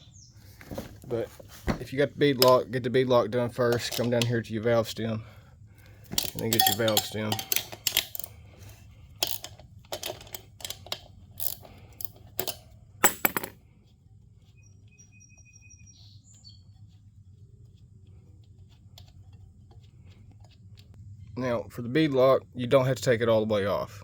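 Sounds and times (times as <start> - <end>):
hand tool clinking on metal: 3.7 - 4.3, 6.1 - 8.4, 9.2 - 13.6.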